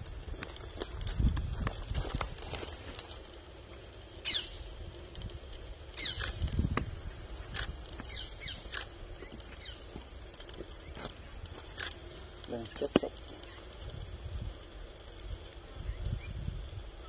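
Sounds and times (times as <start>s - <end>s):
low outdoor rumble: 0.0s - 17.0s
birds calling: 4.0s - 14.1s.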